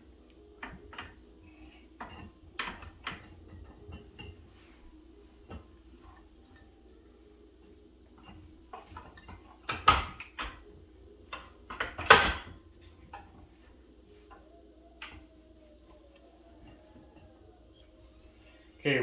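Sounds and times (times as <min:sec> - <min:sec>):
faint steady hum: 0:00.0 - 0:19.0
metal clanks and rattling: 0:00.6 - 0:06.8, 0:08.1 - 0:15.3.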